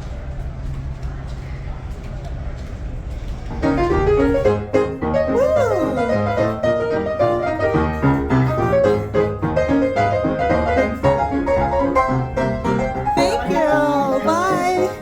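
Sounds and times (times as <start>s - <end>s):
piano music: 3.6s - 15.0s.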